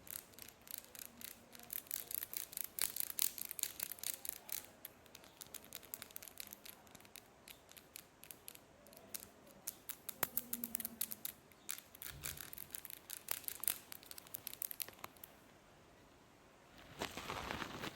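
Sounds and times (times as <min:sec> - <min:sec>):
sponge crackling: 0:16.8 - 0:17.9.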